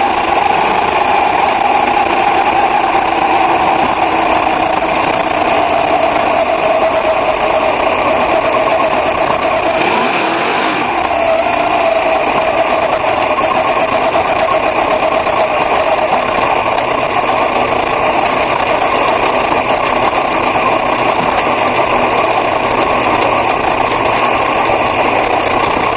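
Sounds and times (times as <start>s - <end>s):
racing car engine high revs: 0.0s - 13.4s, 17.4s - 20.1s.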